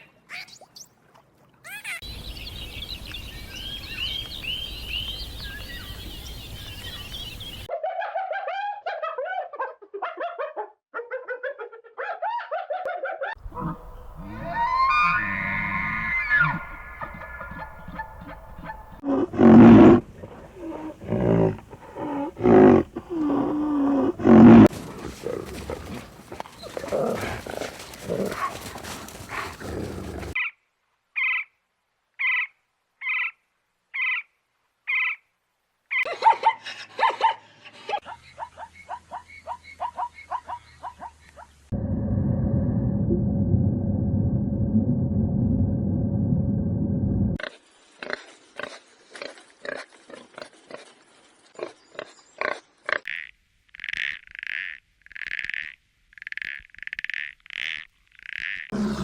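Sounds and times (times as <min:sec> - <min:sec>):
rising animal call: 0:13.4 - 0:30.4
short squeaky animal calls: 0:13.6 - 0:18.9.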